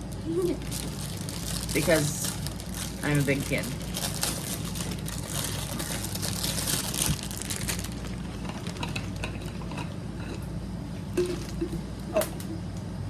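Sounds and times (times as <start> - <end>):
low background hum: 0.0 - 13.0
plastic packaging crinkling: 0.4 - 9.8.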